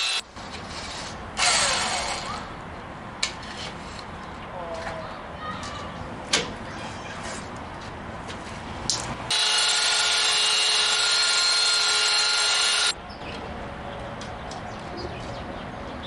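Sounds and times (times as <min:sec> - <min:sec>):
power tool motor whining: 0:00.0 - 0:00.2, 0:09.3 - 0:13.0.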